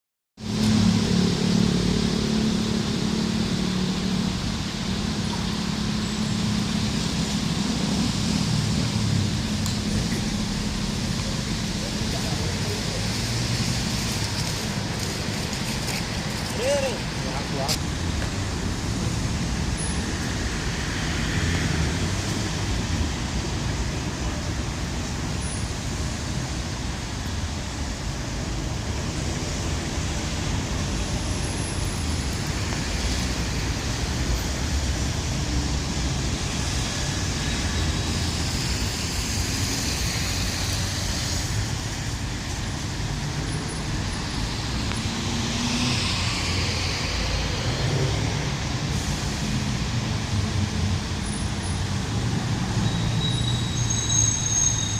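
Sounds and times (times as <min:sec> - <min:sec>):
steady rushing noise: 0:00.4 - 0:53.2.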